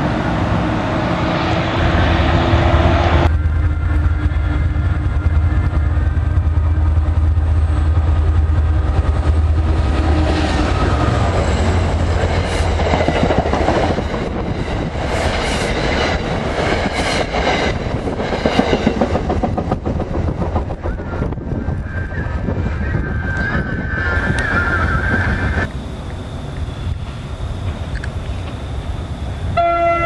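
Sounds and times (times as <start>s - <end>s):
diesel engine drone: 0.0s - 15.1s, 24.3s - 30.0s
train wheels clacking on rails: 3.2s - 22.3s.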